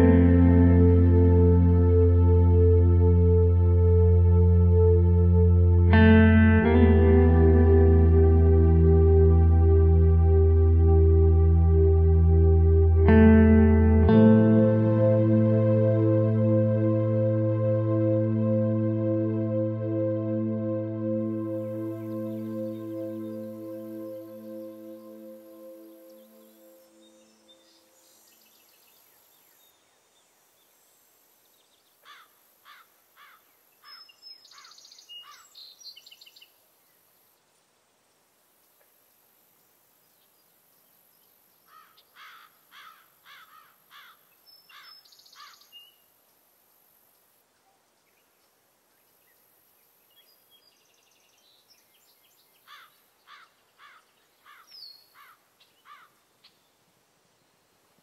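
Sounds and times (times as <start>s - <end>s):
ambient music with singing bowl tones: 0.0s - 28.4s
low hiss: 0.0s - 58.0s
faint birdsong: 5.8s - 58.0s.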